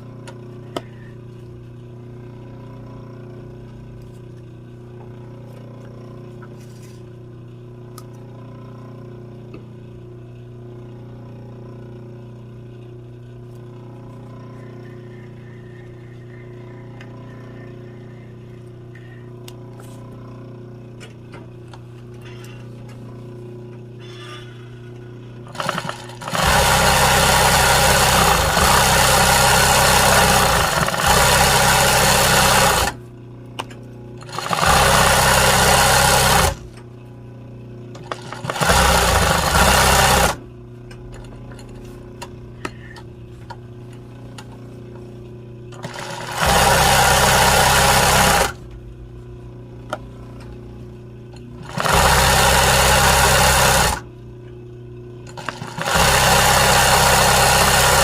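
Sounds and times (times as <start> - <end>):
sewing machine stitching: 25.5 - 33.0, 34.2 - 36.7, 38.0 - 40.4, 45.7 - 48.6, 51.6 - 54.0, 55.3 - 58.0.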